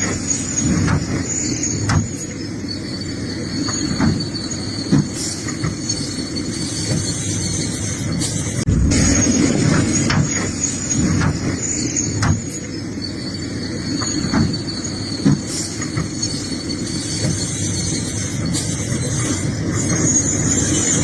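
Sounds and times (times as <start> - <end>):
excavator engine under load: 0.0 - 21.0
thin high squeal: 0.0 - 21.0.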